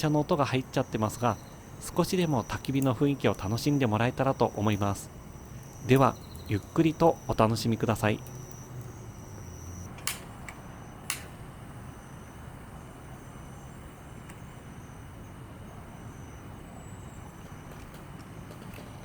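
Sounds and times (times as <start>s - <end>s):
distant road traffic hum: 0.0s - 19.0s
sharp clicks: 8.2s - 11.4s.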